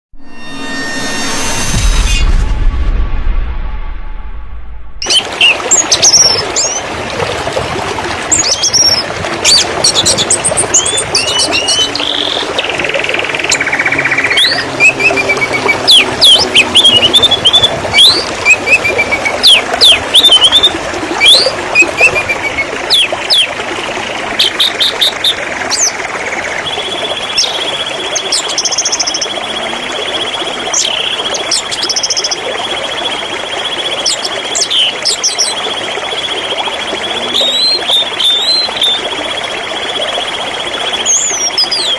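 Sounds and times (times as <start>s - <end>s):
long steady high note: 0.1s - 2.7s
canary singing: 10.0s - 23.5s.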